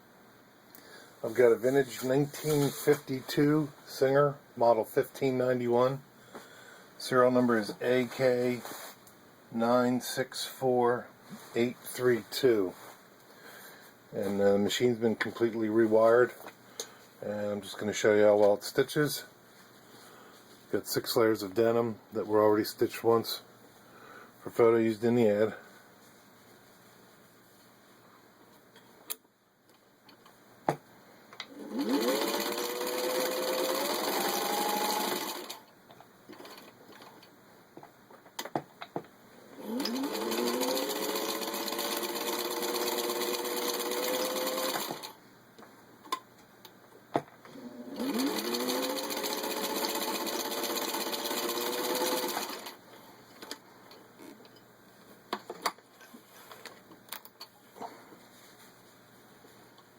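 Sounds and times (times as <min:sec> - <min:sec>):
sewing machine motor whine: 0:31.5 - 0:35.6, 0:39.6 - 0:45.1, 0:47.6 - 0:52.8.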